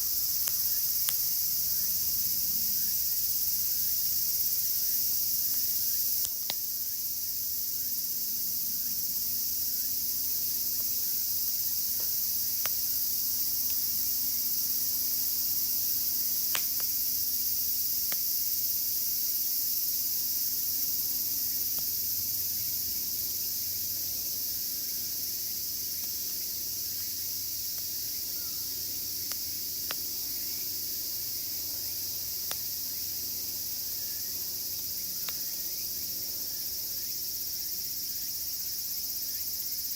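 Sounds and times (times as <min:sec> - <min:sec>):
campfire wood popping: 0:00.0 - 0:01.7, 0:06.2 - 0:06.7, 0:11.9 - 0:17.2, 0:18.0 - 0:18.3, 0:21.7 - 0:22.0, 0:27.6 - 0:33.4
cicadas shrilling: 0:00.0 - 0:39.9.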